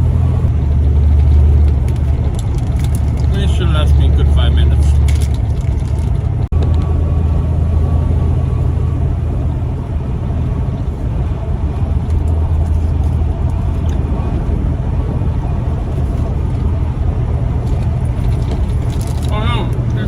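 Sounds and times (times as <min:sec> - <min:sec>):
truck engine and road drone: 0:00.0 - 0:20.0.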